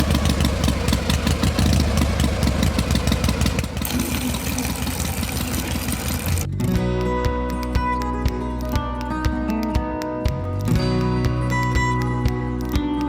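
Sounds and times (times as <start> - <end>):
small engine chugging: 0.0 - 6.5.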